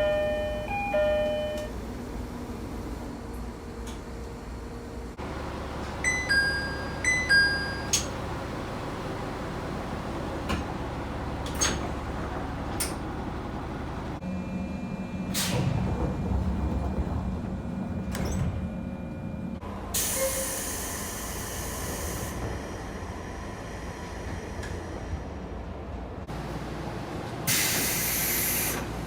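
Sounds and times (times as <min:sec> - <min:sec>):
train hum: 0:00.0 - 0:29.0
train doors sliding shut: 0:05.2 - 0:14.2, 0:15.2 - 0:25.3, 0:27.5 - 0:29.0
air hiss from door engine: 0:27.5 - 0:28.9.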